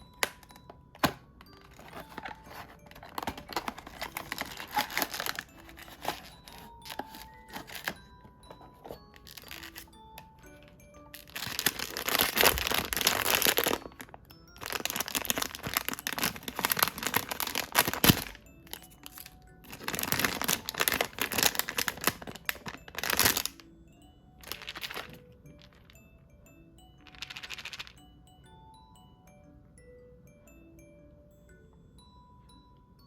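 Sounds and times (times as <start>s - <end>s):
packaging crinkling: 1.5s - 9.9s, 10.6s - 23.6s, 24.4s - 25.8s, 27.1s - 27.9s.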